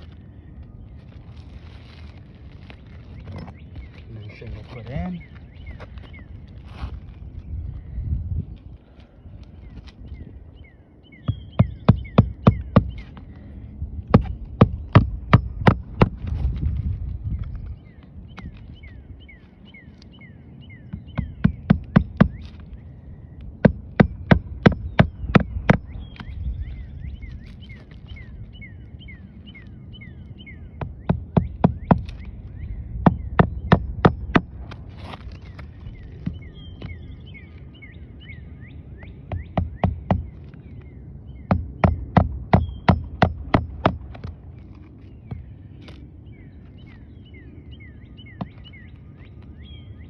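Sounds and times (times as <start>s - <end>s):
hammer striking nails: 14.2s - 16.2s, 41.5s - 44.3s.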